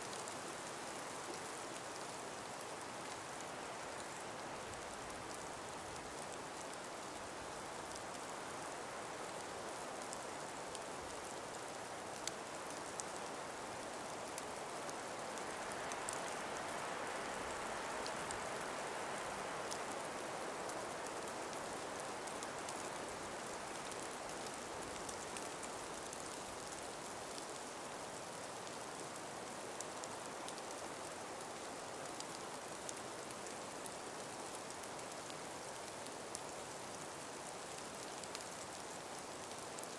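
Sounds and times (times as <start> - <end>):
breeze through trees: 0.0 - 39.9
faint ticks: 12.1 - 18.6, 29.6 - 39.9.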